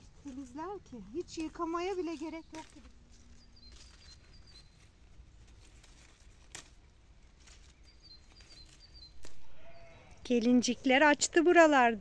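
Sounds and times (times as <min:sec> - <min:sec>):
small bird chirping: 0:00.0 - 0:06.2, 0:07.4 - 0:10.6
leaves crackling being handled: 0:00.0 - 0:10.8.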